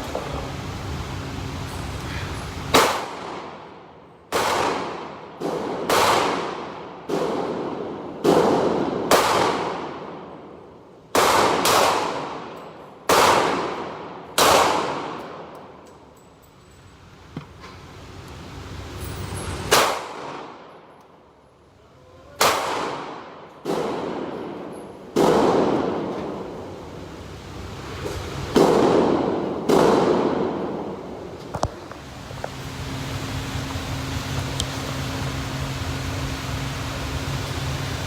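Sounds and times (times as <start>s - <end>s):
gunshots: 2.7s - 3.7s, 4.3s - 10.3s, 11.1s - 15.5s, 19.7s - 20.7s, 22.4s - 26.4s, 28.5s - 31.0s.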